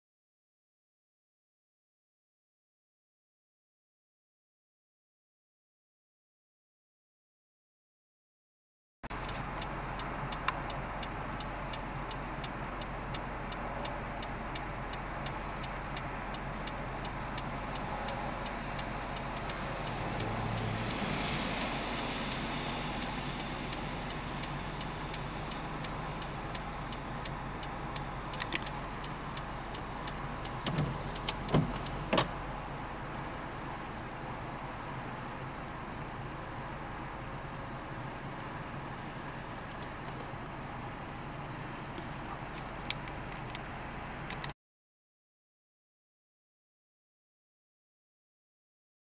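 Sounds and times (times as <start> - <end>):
car engine idling: 9.1 - 44.5
fast regular ticking: 9.2 - 32.3
sharp clicks: 24.4 - 32.4.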